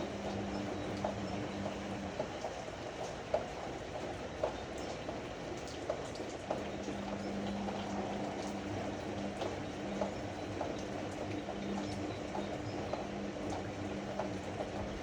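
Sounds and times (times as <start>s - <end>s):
motor hum: 0.0s - 2.5s, 6.5s - 15.0s.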